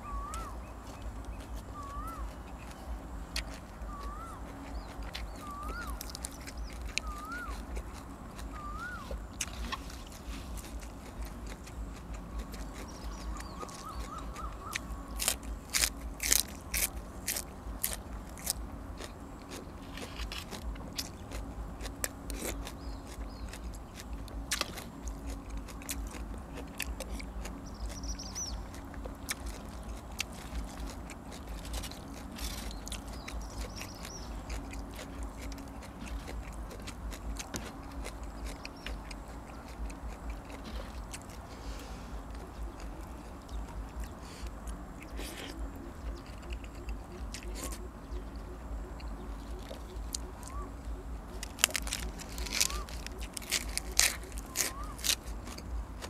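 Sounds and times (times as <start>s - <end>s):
person chewing and eating: 0.0s - 56.0s.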